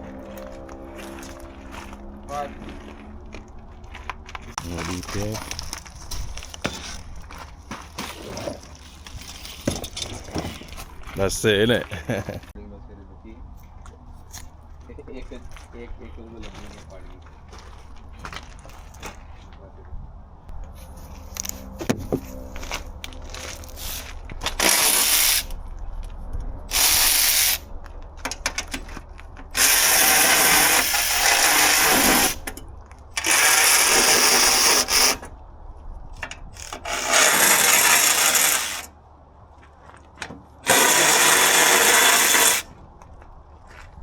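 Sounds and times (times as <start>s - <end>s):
power tool running: 29.6s - 32.4s, 33.2s - 35.2s, 36.6s - 38.9s, 40.6s - 42.7s.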